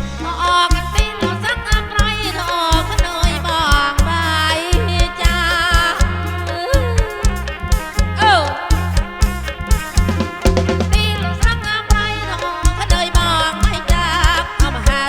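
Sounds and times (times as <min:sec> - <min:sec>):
drum kit and bass beat: 0:00.0 - 0:15.0
vibrato folk melody: 0:00.0 - 0:15.0.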